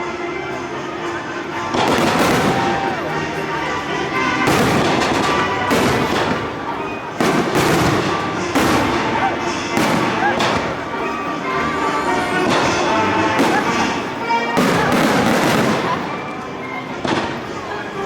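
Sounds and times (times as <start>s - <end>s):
fireworks crackling: 0.0s - 18.0s
firework shells bursting: 1.6s - 3.3s, 4.2s - 16.4s.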